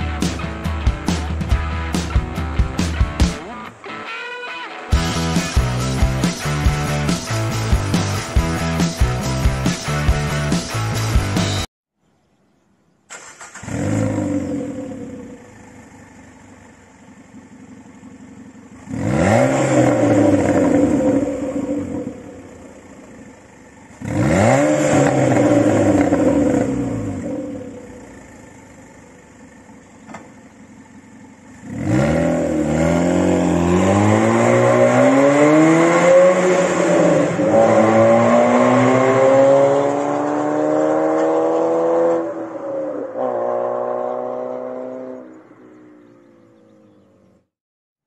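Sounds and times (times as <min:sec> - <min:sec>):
car engine revving: 0:13.1 - 0:47.4
car accelerating through gear shifts: 0:13.5 - 0:28.8, 0:29.4 - 0:47.4.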